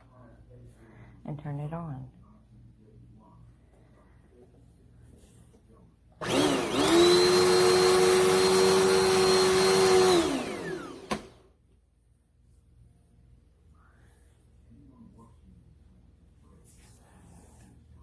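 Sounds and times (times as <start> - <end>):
vacuum cleaner motor whining: 6.2 - 11.5.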